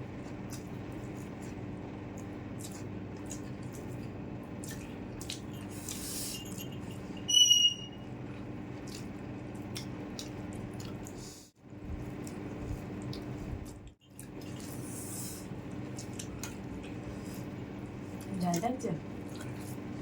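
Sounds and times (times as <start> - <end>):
steady low hum: 0.0 - 20.0
chewing clicks: 0.4 - 6.0, 8.8 - 11.2
sharp high-pitched squeak: 7.2 - 8.1.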